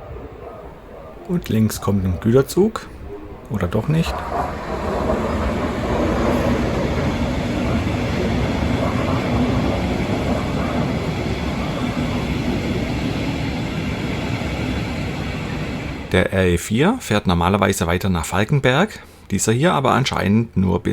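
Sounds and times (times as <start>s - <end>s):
train wheels rumbling on rails: 0.0s - 16.3s.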